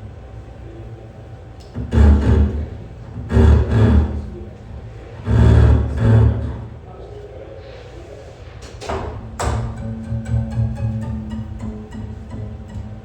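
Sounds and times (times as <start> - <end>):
low rumbling drone: 9.2 - 13.0.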